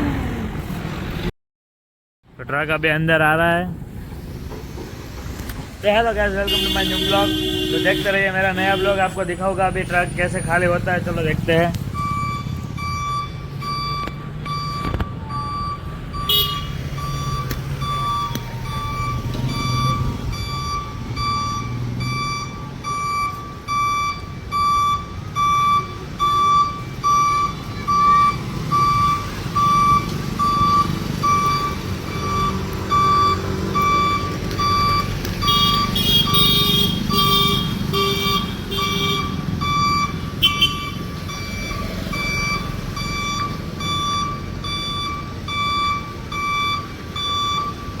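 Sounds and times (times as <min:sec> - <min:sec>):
truck reverse alarm beeping: 0:09.8 - 0:48.0.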